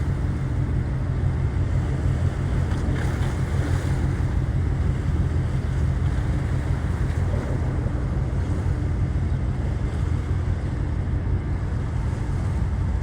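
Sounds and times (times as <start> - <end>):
boat engine rumble: 0.0 - 13.0
rushing water: 0.0 - 13.0.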